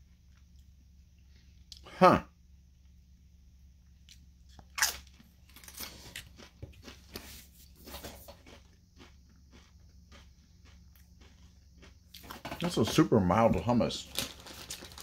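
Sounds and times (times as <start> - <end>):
person chewing crunchy food: 4.0 - 13.0.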